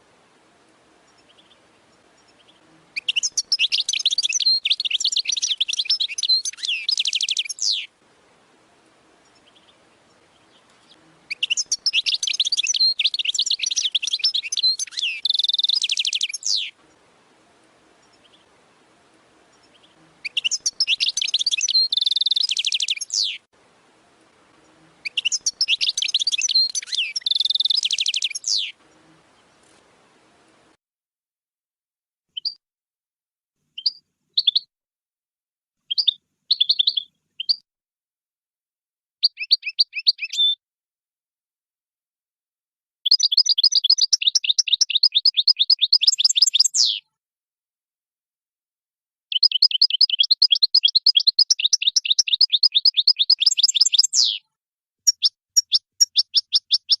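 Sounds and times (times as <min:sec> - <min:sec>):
goldfinch twittering and trilling: 0:02.2 - 0:07.9, 0:09.3 - 0:16.7, 0:19.6 - 0:23.4, 0:25.0 - 0:28.8, 0:33.8 - 0:34.6, 0:35.9 - 0:37.6, 0:39.2 - 0:40.6, 0:43.1 - 0:47.0, 0:49.3 - 0:54.4, 0:55.1 - 0:57.0.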